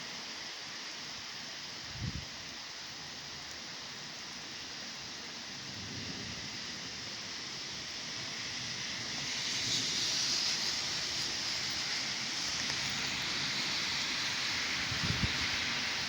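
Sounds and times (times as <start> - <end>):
heavy rain hissing: 0.0 - 16.0.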